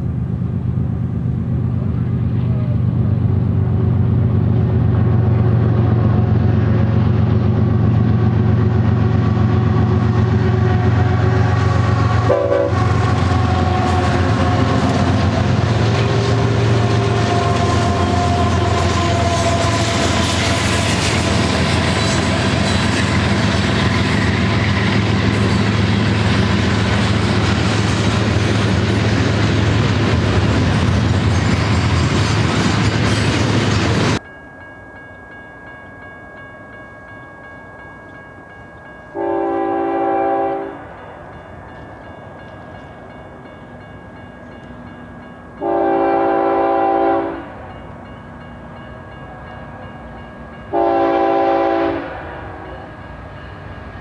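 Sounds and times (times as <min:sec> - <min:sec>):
freight train rumbling past: 0:00.0 - 0:54.0
distant train horn blasts: 0:08.0 - 0:26.9, 0:39.1 - 0:41.0, 0:45.6 - 0:47.7, 0:50.5 - 0:53.6.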